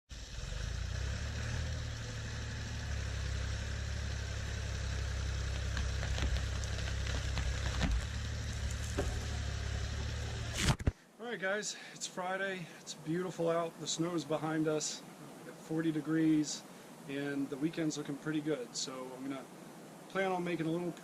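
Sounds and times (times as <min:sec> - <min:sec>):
tractor engine idling: 0:00.2 - 0:10.6.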